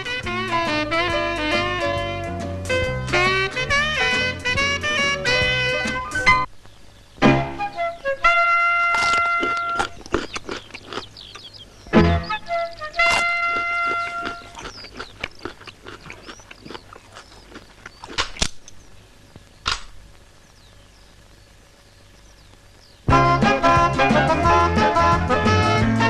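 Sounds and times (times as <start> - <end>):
horn blast: 0.0 - 6.5, 12.7 - 14.3, 23.1 - 26.0
music with steady beat: 0.0 - 6.5, 23.1 - 26.0
faint bird chirps: 6.4 - 19.7, 20.3 - 23.1.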